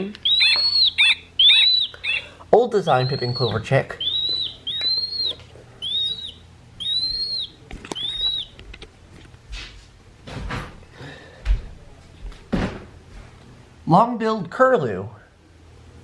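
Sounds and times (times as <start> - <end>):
recorded bird whistles: 0.0 - 8.6.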